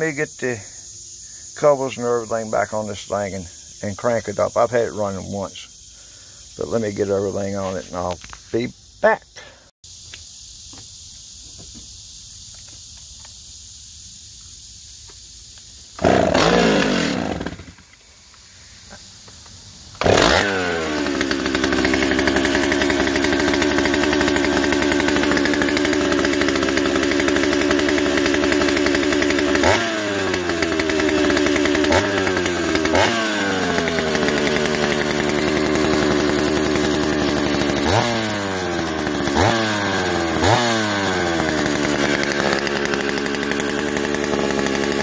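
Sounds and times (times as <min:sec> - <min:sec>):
chainsaw revving: 0:16.0 - 0:17.9, 0:20.0 - 0:45.0
chainsaw pull-starting and idling: 0:16.0 - 0:18.0, 0:19.9 - 0:45.0.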